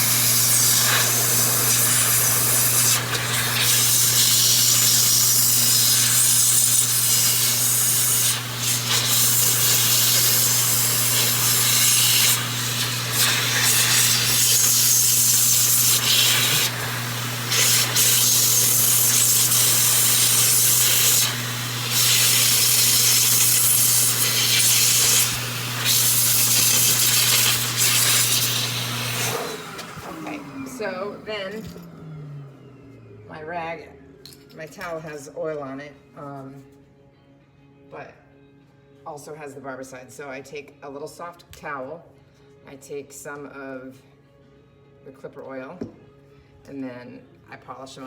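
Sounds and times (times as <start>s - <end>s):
electric air blower running: 0.0s - 33.3s.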